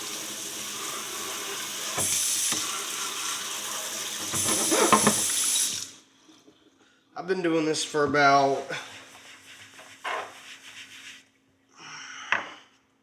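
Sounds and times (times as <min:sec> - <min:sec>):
water spraying on metal: 0:00.0 - 0:05.9.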